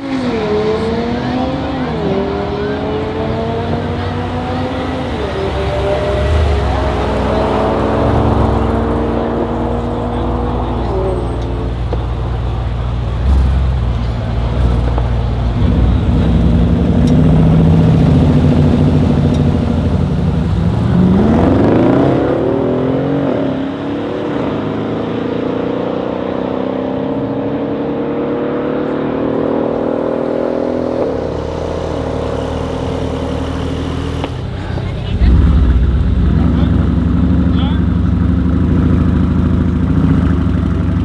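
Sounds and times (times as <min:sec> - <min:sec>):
car engines revving high: 0:00.0 - 0:41.0
cars accelerating hard: 0:00.0 - 0:41.0.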